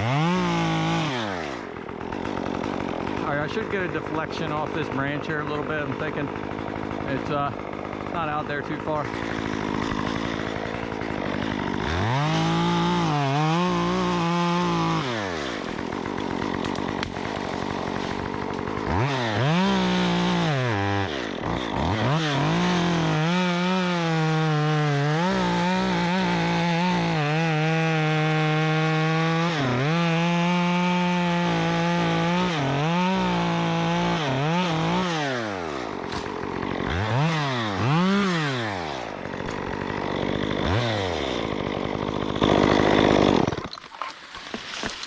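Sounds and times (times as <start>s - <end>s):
chainsaw revving and cutting: 0.0s - 45.0s.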